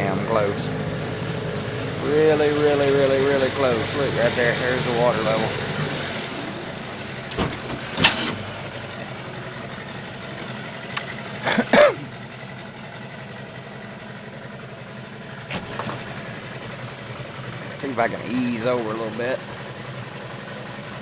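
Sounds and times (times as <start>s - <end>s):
outboard motor idling: 0.0s - 21.0s.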